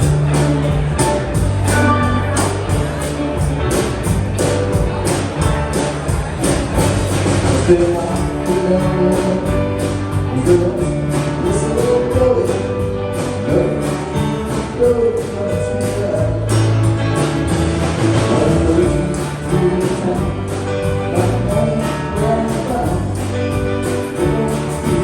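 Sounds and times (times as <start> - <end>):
guitar: 0.0 - 25.0
steady drum beat: 0.0 - 25.0
person singing: 7.2 - 16.7, 18.1 - 25.0.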